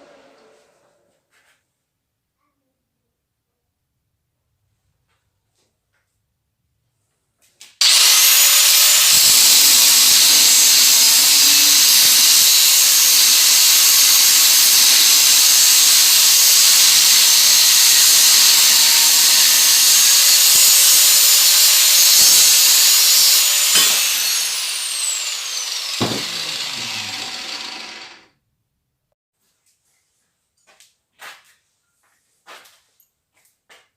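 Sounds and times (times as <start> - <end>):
power tool cutting wood: 7.8 - 28.3
knock: 26.0 - 26.4.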